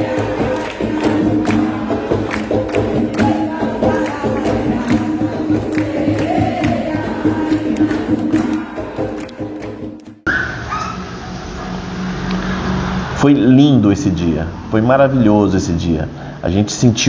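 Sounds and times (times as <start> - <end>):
group singing together: 0.0 - 10.3
hand drums beaten in rhythm: 0.0 - 10.3.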